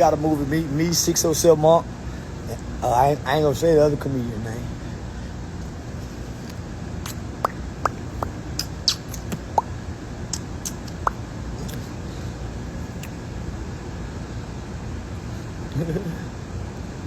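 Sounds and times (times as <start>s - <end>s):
short high squeaks: 7.1s - 9.6s.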